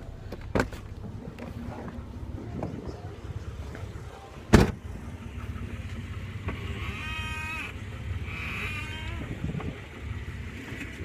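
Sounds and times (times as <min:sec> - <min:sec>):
low steady rumble: 0:00.0 - 0:11.0
steering wheel squeaking: 0:06.4 - 0:09.8.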